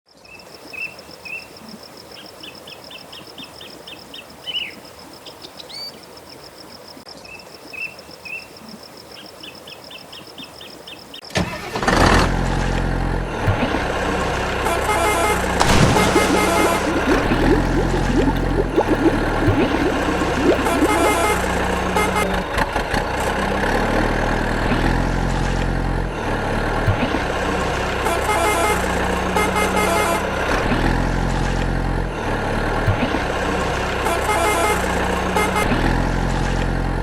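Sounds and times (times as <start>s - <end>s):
birds chirping: 15.7s - 21.4s.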